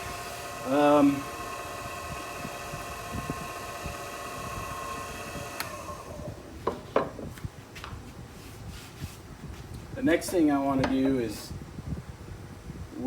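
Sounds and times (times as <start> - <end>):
lathe motor whining: 0.0 - 6.7.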